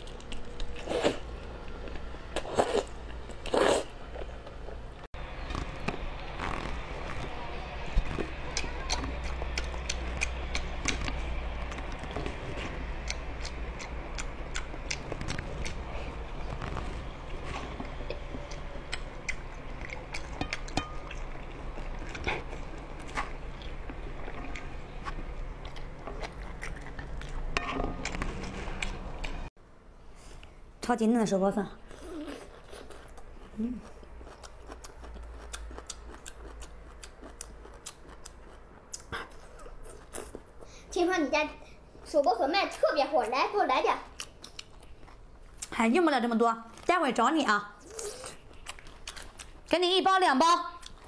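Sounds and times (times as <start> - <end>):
low hum: 3.0 - 30.8
chewing crunchy bamboo shoots: 5.4 - 29.4, 31.9 - 40.6, 47.8 - 49.8.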